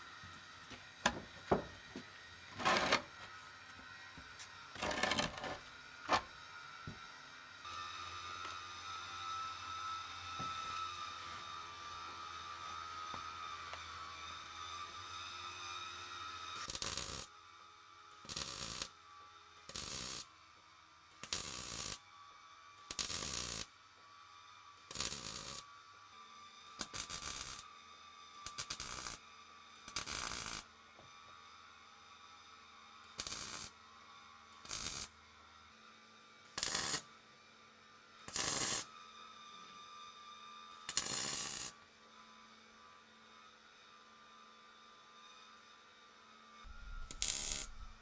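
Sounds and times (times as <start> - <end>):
welding crackle bursts: 16.6 - 17.3, 18.3 - 18.9, 19.7 - 20.2, 21.2 - 22.0, 22.9 - 23.7, 24.9 - 25.6, 26.8 - 27.6, 28.5 - 29.2, 29.9 - 30.6, 33.2 - 33.7, 34.7 - 35.1, 36.6 - 37.0, 38.3 - 38.8, 40.9 - 41.7, 46.9 - 48.0.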